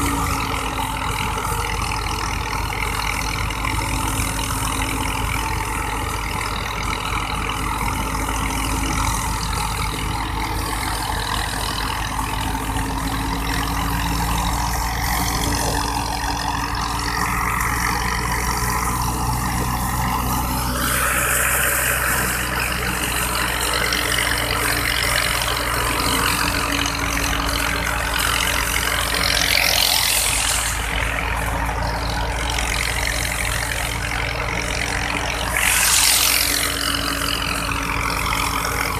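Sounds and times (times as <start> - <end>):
thresher running: 0.0 - 38.9
rushes of hiss: 29.8 - 31.0, 35.4 - 37.4.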